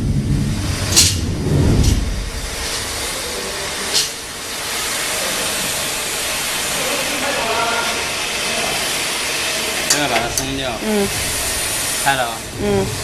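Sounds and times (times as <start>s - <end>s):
low rumble: 0.0s - 4.6s
industrial machinery hissing: 0.0s - 13.0s.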